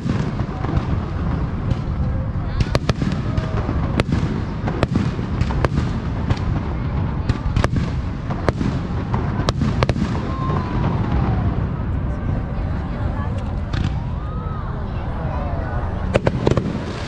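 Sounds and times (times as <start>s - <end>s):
sharp firework cracks: 0.0s - 11.5s, 13.7s - 14.1s
fireworks booming: 0.0s - 14.6s, 16.0s - 17.0s.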